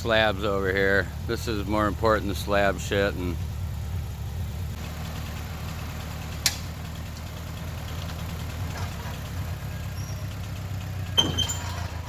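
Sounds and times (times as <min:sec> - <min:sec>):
vehicle engine idling: 0:00.0 - 0:12.0
sharp click: 0:06.4 - 0:06.7.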